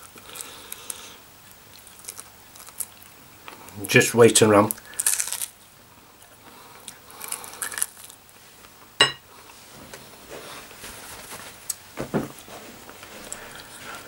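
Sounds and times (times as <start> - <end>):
man chewing: 0.0 - 3.8, 4.7 - 9.6.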